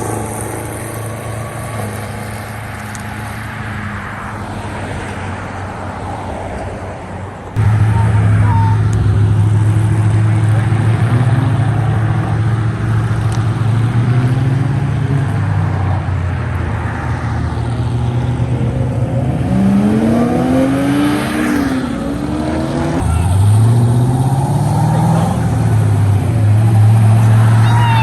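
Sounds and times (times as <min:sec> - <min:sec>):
car engines droning: 0:00.0 - 0:28.0
car revving and accelerating: 0:07.6 - 0:28.0.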